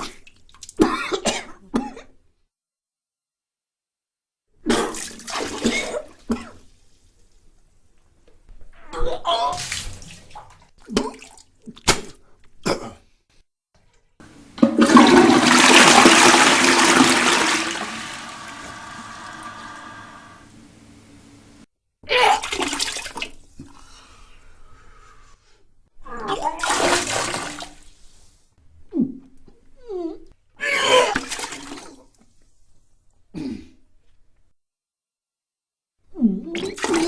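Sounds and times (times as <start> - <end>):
person retching and vomiting: 0.0 - 2.2, 4.6 - 6.6, 10.8 - 13.1, 14.7 - 19.8
gurgling cistern refill: 14.2 - 21.0
toilet flushing: 14.2 - 21.6.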